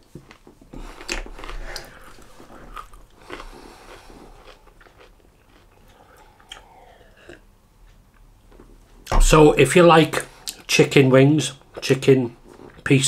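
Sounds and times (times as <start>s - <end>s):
man chewing: 0.0s - 9.1s.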